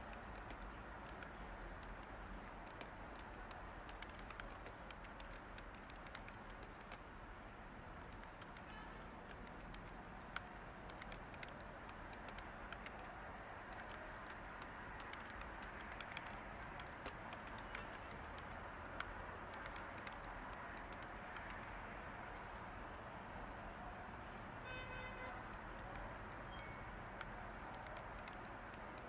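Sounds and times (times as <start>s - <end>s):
keyboard typing: 0.0s - 7.1s, 7.9s - 22.6s, 25.2s - 29.0s
white noise hiss: 5.1s - 17.8s.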